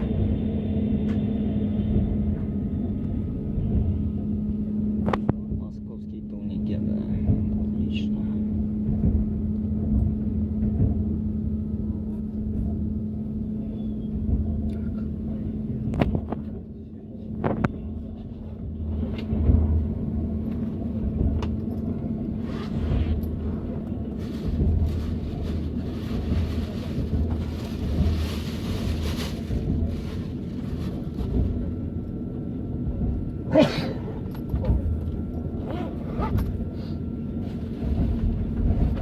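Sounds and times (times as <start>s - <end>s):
train rumbling on rails: 0.0s - 39.0s
low thumps from running gear: 7.2s - 7.7s, 8.6s - 11.5s.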